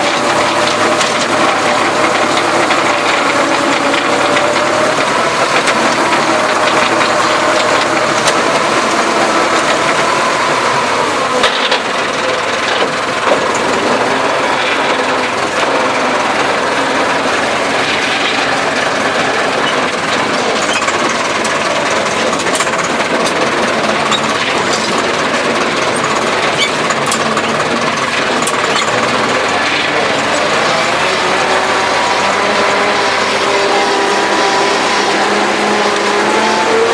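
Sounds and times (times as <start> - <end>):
tractor engine running: 0.0 - 36.9
metallic rattle of loose parts: 11.3 - 30.0.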